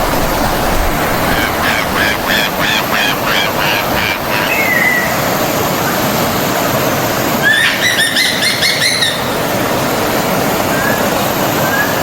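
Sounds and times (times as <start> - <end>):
stream flowing: 0.0 - 12.0.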